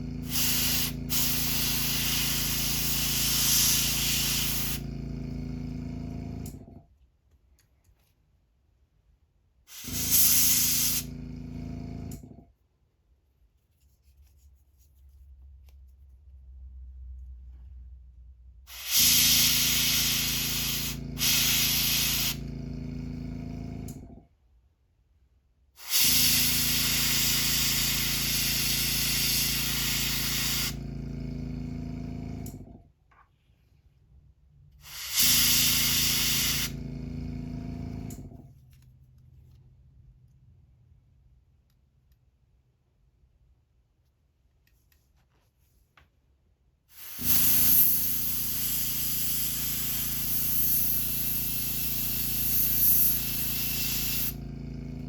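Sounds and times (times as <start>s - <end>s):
airbrush compressor hum: 0.0s - 6.8s, 9.7s - 12.5s, 18.7s - 24.2s, 25.8s - 32.8s, 34.8s - 38.5s, 47.0s - 55.0s
airbrush spraying hiss: 0.2s - 4.8s, 9.7s - 11.1s, 18.7s - 22.4s, 25.8s - 30.8s, 34.8s - 36.8s, 47.0s - 54.4s.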